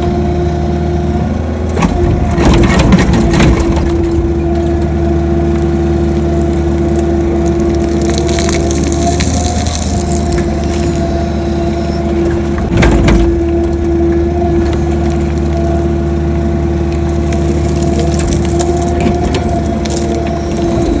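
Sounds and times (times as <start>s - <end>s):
excavator engine humming: 0.0s - 21.0s
hydraulic whine: 1.2s - 21.0s
excavator bucket crunching ground: 1.7s - 21.0s
scraping and knocks: 17.0s - 21.0s.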